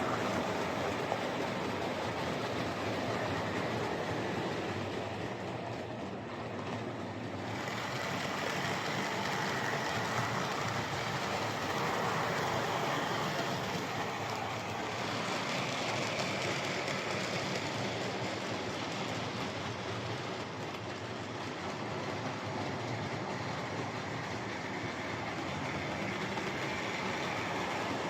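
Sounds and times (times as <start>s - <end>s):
model train motor whirring: 7.3s - 28.0s.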